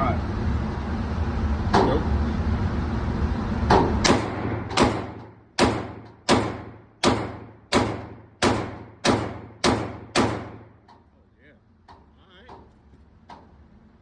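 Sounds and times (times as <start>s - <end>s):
pistol shots echoing: 4.1s - 10.7s.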